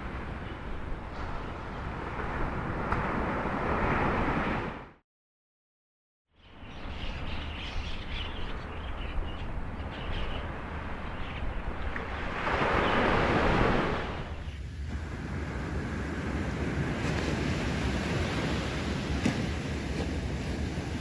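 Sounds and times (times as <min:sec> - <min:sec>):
ocean surf washing on shore: 0:00.0 - 0:05.0, 0:09.4 - 0:21.0.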